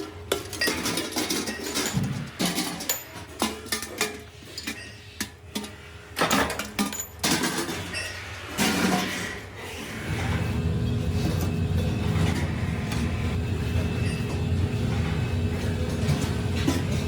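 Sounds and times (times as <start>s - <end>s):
steady low hum: 9.9s - 17.0s.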